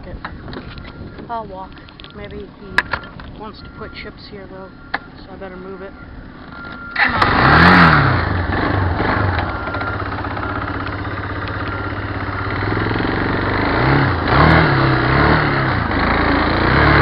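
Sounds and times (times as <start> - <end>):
vehicle engine revving: 4.7 - 17.0.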